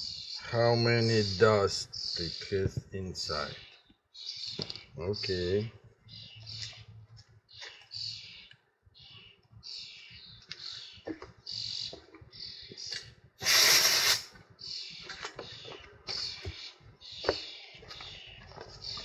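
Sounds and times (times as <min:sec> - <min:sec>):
short hissing strokes: 0:13.4 - 0:14.3.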